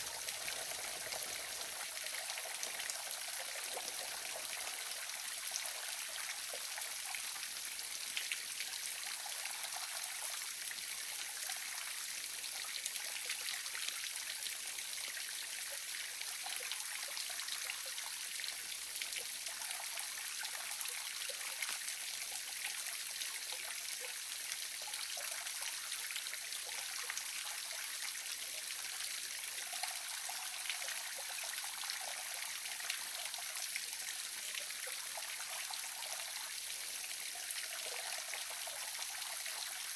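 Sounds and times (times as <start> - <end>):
small waterfall splashing: 0.0 - 9.1.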